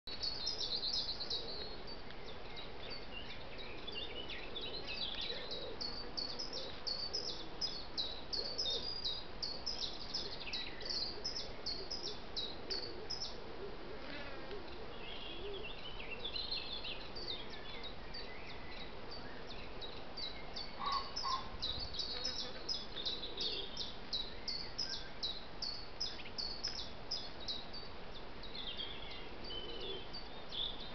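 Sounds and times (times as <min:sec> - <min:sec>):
small birds chirping: 0:00.1 - 0:13.4, 0:14.0 - 0:30.9
steady background hiss: 0:00.1 - 0:30.9.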